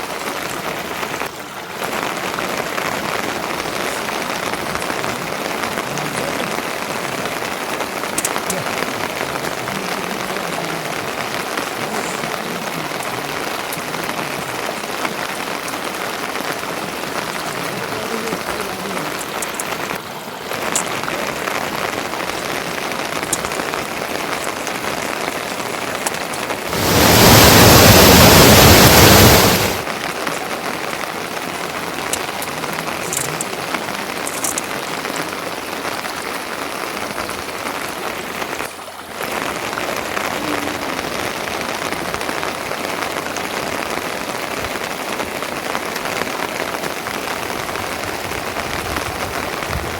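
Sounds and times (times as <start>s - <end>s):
steady rain falling: 0.0s - 49.9s
loud rush of noise: 26.6s - 30.2s.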